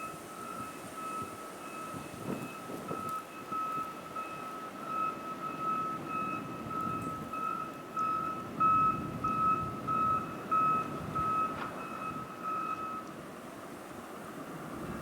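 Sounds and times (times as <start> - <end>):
vehicle reversing alarm beeping: 0.0 - 13.2.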